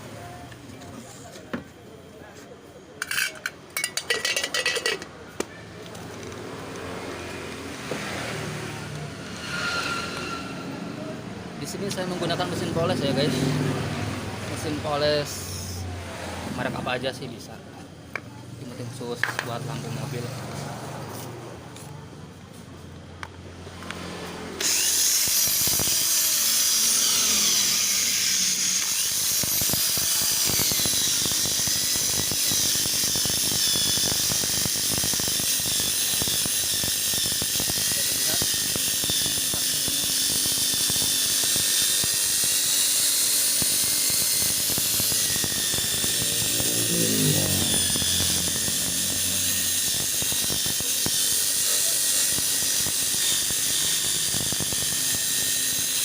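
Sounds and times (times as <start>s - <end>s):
polishing machine high whine: 7.2s - 13.7s, 24.6s - 56.0s.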